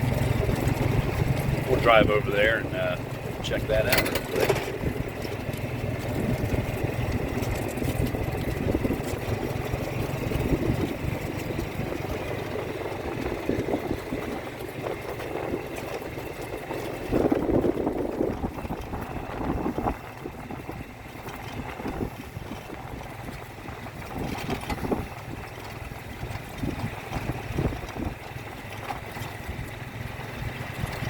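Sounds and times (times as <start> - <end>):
rolling rumble: 0.0 - 31.0
vehicle driving slowly: 0.0 - 31.0.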